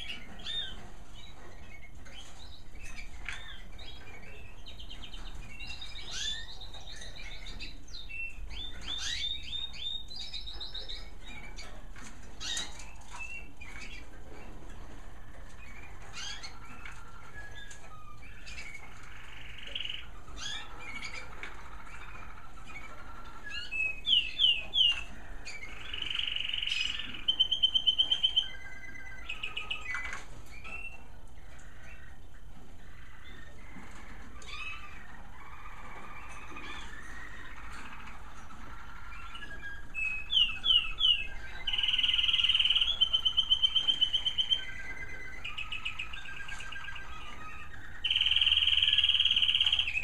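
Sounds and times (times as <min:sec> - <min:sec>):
canaries singing: 0:00.0 - 0:50.0.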